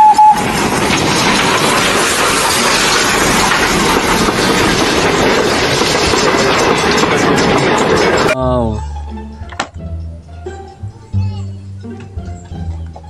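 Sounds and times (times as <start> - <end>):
steam locomotive running on track: 0.0 - 8.4.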